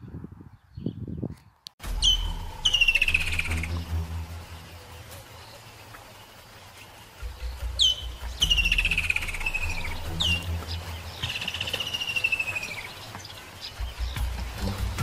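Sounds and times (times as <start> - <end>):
bird trills falling in pitch: 1.8 - 3.9
low rumble: 1.8 - 5.2
bird whistles: 1.9 - 3.7, 7.8 - 10.5, 11.2 - 12.9.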